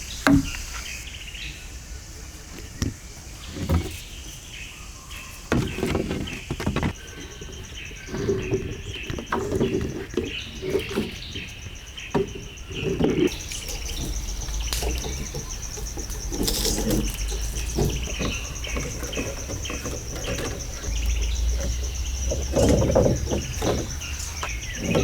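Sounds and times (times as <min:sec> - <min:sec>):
birds chirping: 0:00.0 - 0:25.0
insect trill: 0:00.0 - 0:25.0
handling knocks and rustles: 0:02.4 - 0:25.0.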